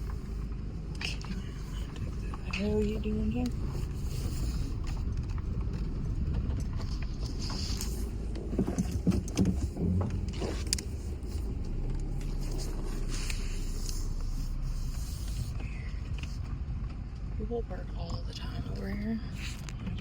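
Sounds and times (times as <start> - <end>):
vehicle engine and tyres rumbling: 0.0 - 20.0.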